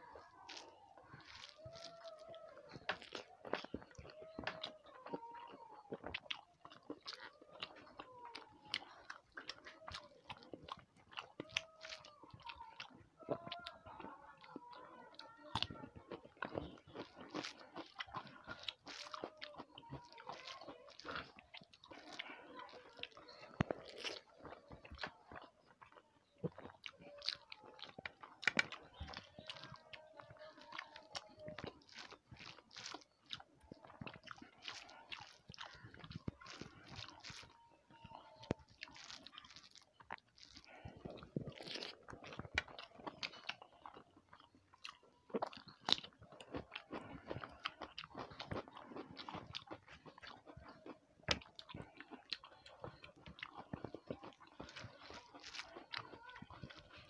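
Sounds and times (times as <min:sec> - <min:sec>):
food crunching: 0:00.0 - 0:57.0
person chewing food: 0:00.0 - 0:57.0
lip smacks: 0:20.3 - 0:29.8.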